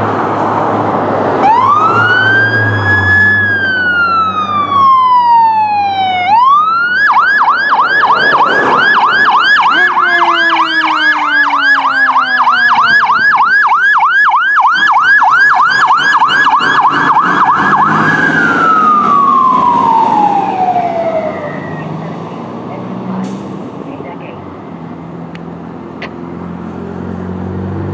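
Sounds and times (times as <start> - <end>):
fire engine siren yelping: 1.3 - 22.5.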